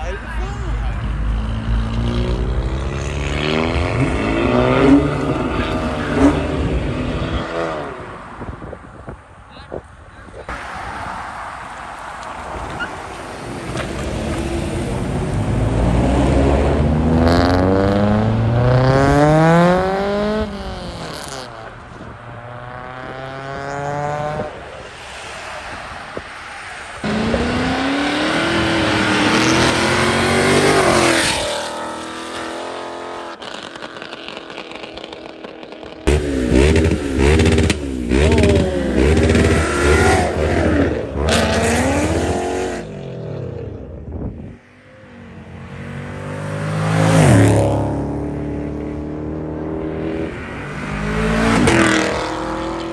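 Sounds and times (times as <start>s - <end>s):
cars accelerating hard: 0.0s - 9.2s, 10.4s - 52.9s
engine revving in sharp blips: 1.3s - 7.8s, 36.0s - 43.9s, 46.2s - 52.9s.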